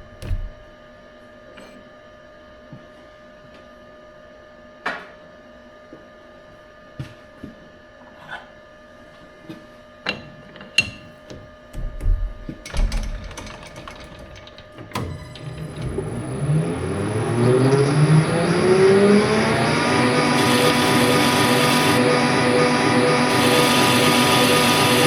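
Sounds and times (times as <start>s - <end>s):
sharp metallic clicks and knocks: 11.8s - 15.0s
workshop machine humming: 11.8s - 25.0s.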